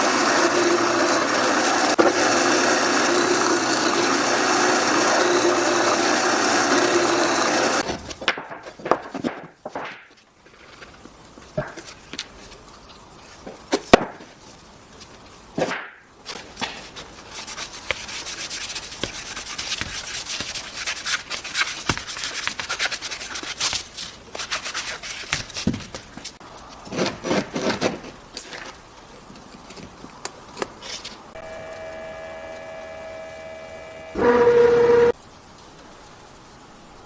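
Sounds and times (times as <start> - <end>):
wood sanding strokes: 0.0 - 7.8, 17.1 - 23.6, 31.4 - 35.2.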